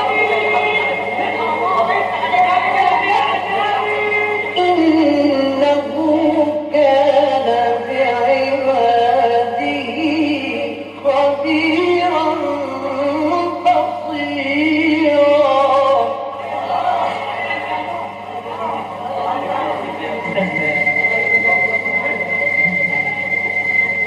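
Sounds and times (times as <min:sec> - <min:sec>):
man reciting melodically: 0:00.0 - 0:16.3.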